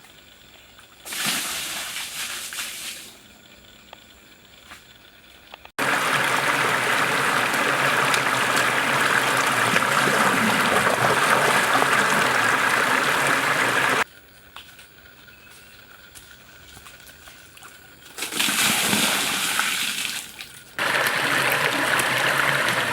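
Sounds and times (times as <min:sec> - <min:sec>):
running water rushing: 0:05.8 - 0:14.0, 0:20.8 - 0:22.9.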